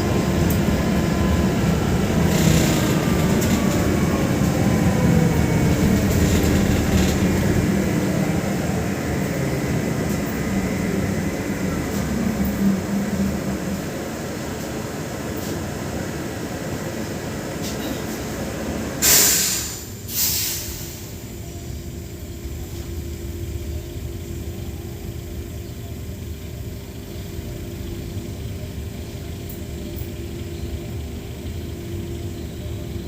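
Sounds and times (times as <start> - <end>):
trolleybus low hum: 0.0 - 33.0
compressed air hisses: 19.0 - 21.3.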